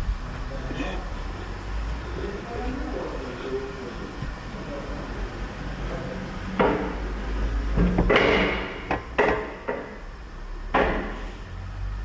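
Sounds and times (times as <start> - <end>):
knocks and clatters: 6.6 - 10.1, 10.7 - 11.3.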